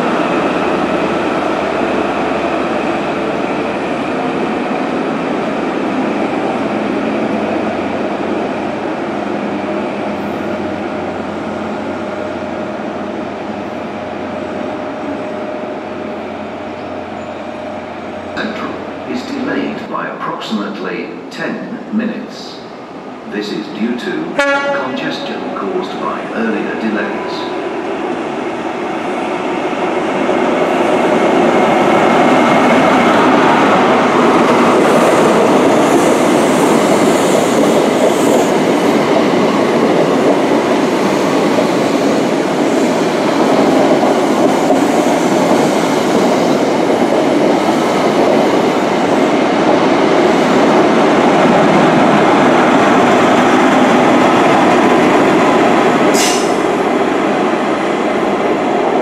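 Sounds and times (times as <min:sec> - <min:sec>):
train wheels rumbling on rails: 0:00.0 - 0:59.0
clickety-clack of wheels: 0:34.3 - 0:52.1.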